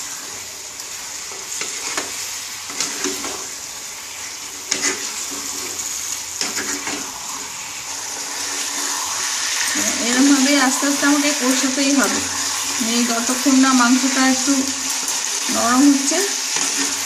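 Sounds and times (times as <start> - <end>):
chicken sizzling in a pan: 0.0 - 17.0
wooden spatula scraping a pan: 1.2 - 10.0, 16.5 - 17.0.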